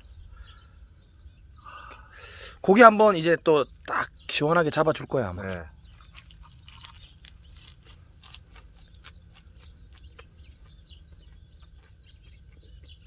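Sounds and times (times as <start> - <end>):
person chewing: 5.9 - 13.0.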